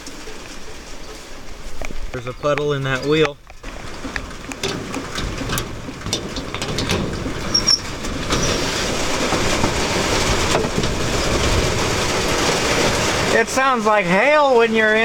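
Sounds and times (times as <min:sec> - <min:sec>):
rain drumming on a metal roof: 0:00.0 - 0:15.0
drips ticking: 0:02.5 - 0:07.9.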